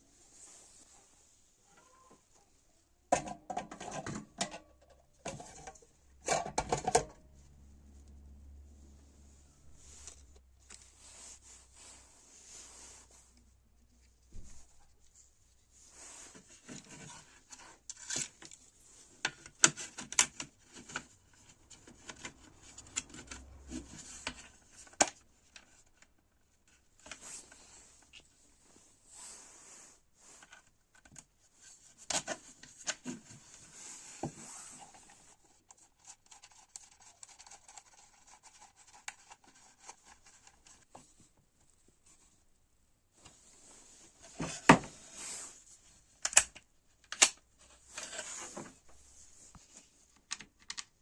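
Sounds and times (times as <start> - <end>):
rubbing and scraping: 31.4 - 41.3.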